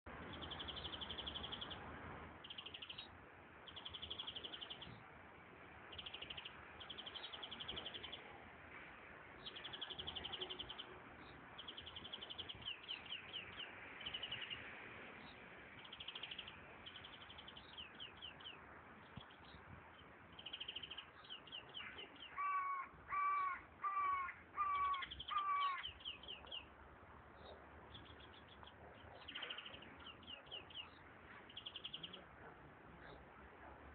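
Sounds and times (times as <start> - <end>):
finch singing high trills: 20.4 - 26.7
crow cawing: 22.4 - 25.9.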